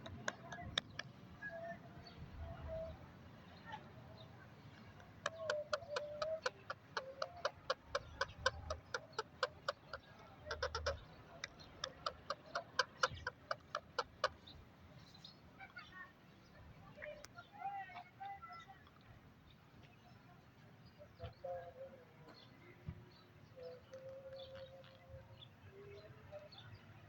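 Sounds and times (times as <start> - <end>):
parrot clicking and clucking: 0.0 - 1.1, 4.8 - 14.4.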